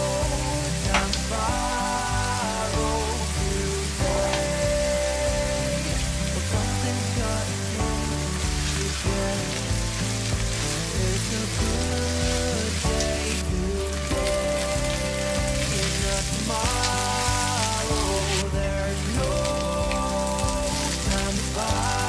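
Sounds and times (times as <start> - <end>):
background music: 0.0 - 22.0
onion sizzling in oil: 0.0 - 22.0.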